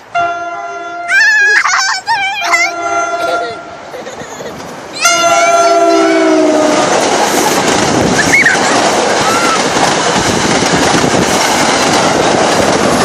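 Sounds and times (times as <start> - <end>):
train cars rushing past: 0.0 - 13.0
train horn: 2.7 - 3.8, 5.0 - 7.2.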